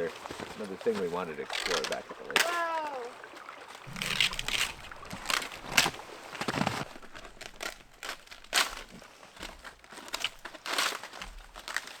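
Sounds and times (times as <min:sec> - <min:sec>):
footsteps crunching in snow: 0:03.8 - 0:12.0.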